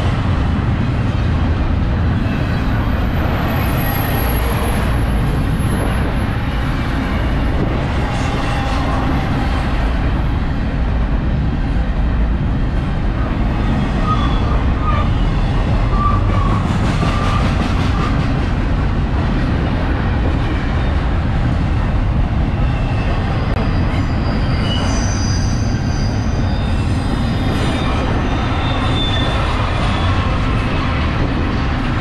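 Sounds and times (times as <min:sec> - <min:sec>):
freight train wheels rumbling: 0:00.0 - 0:32.0
wheel squeals: 0:22.7 - 0:30.4.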